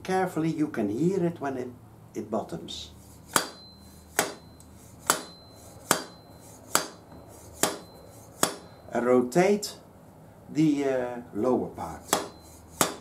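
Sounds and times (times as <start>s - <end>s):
sharp metallic taps: 3.3s - 8.8s, 12.1s - 13.0s.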